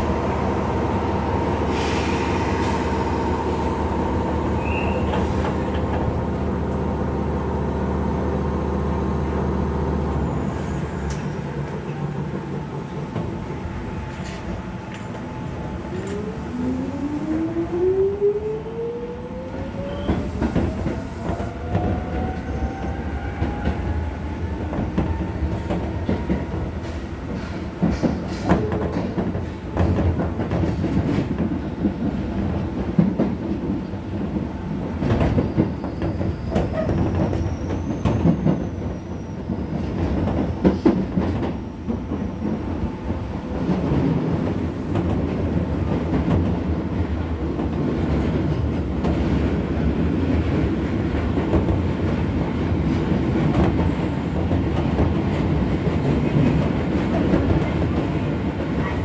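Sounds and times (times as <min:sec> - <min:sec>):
train wheels rumbling: 0:00.0 - 0:59.0
rail-joint clacks: 0:24.6 - 0:39.0.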